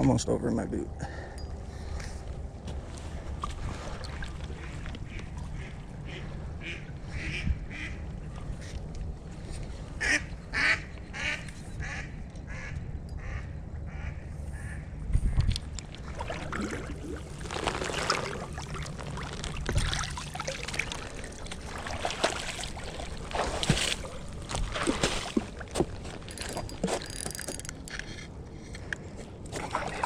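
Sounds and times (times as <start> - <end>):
creek water splashing: 2.7 - 6.8, 15.8 - 27.1, 29.5 - 30.0.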